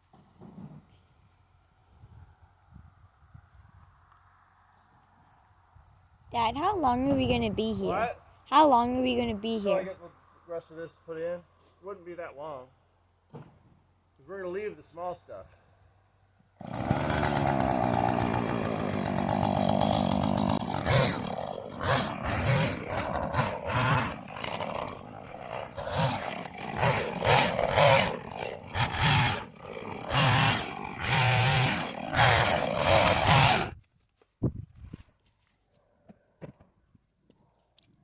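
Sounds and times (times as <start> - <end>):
chainsaw revving: 16.6 - 33.8.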